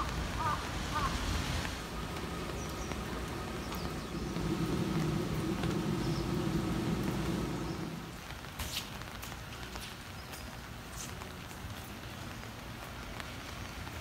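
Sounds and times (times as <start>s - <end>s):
vehicle engine hum: 0.0s - 8.5s
steady background hiss: 0.0s - 14.0s.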